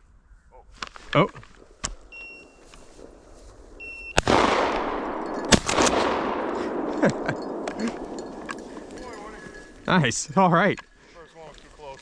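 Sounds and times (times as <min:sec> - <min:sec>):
short electronic beep: 0:02.1 - 0:02.7, 0:03.8 - 0:04.2
shotgun shots with echo: 0:04.2 - 0:06.9.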